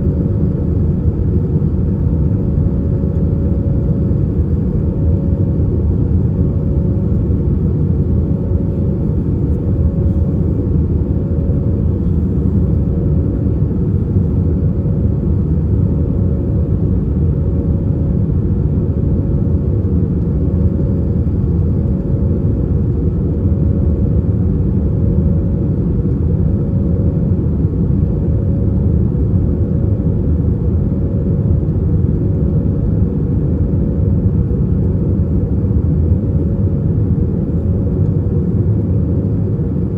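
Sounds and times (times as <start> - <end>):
airplane cabin engine rush: 0.0 - 39.9
thin steady hum: 5.3 - 16.9.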